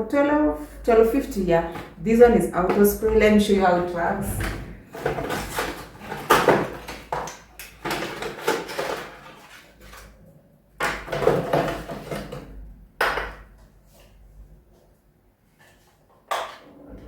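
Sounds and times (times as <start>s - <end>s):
plastic packaging rustling and knocking: 1.5s - 10.2s, 10.8s - 14.2s.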